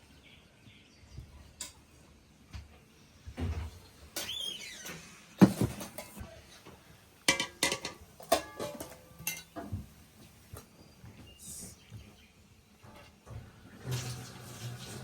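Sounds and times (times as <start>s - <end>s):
dishes and cutlery clinking: 5.4s - 6.3s, 7.3s - 9.9s.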